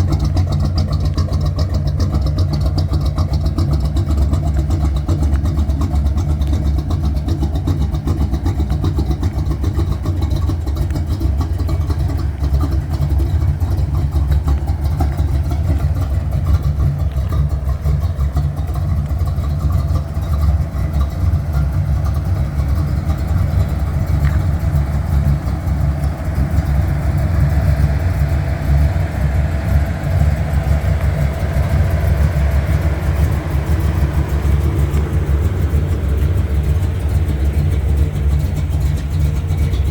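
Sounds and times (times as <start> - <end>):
pickup truck engine running: 0.0 - 39.9.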